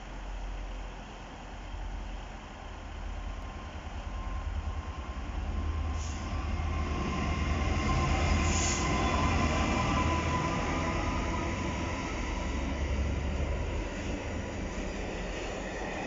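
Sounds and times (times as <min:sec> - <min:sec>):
diesel locomotive engine: 0:00.0 - 0:16.0
freight wagons rumbling on rails: 0:03.7 - 0:16.0.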